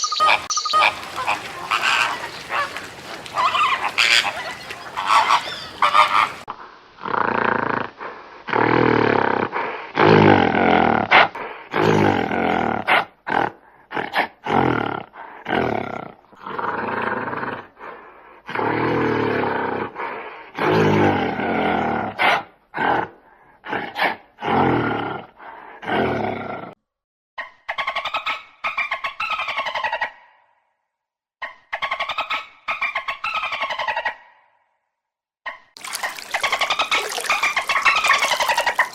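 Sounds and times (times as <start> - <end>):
animal giving low drawn-out calls: 0.8 - 26.8.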